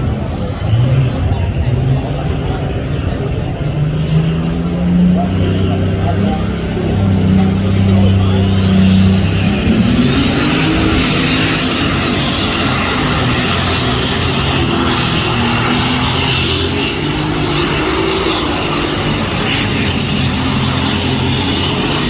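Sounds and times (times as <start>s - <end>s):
tractor engine high whine: 0.0s - 22.0s.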